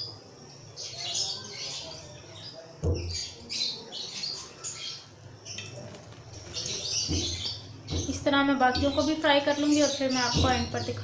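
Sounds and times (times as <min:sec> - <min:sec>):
small birds chirping: 0:00.0 - 0:11.0
utensil knock: 0:02.8 - 0:03.3, 0:06.5 - 0:09.2, 0:10.2 - 0:11.0.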